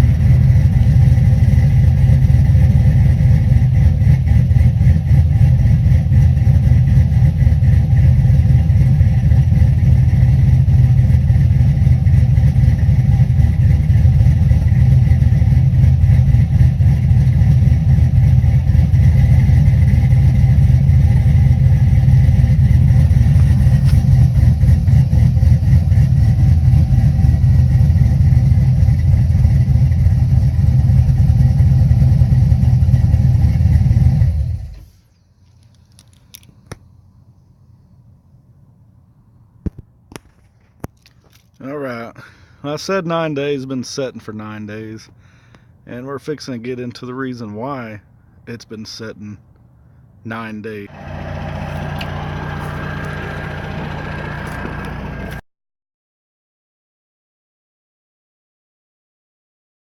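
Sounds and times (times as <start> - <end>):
vee eight engine idling: 0.0 - 34.9, 50.8 - 55.4.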